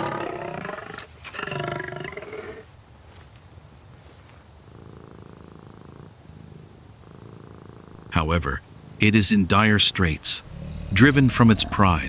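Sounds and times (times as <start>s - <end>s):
lion roaring: 10.4s - 12.0s
low rumble: 10.4s - 12.0s.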